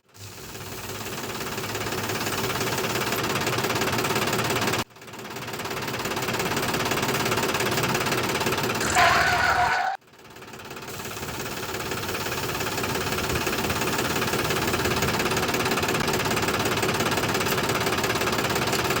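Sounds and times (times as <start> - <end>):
small motor running: 0.0 - 4.9, 10.9 - 19.0.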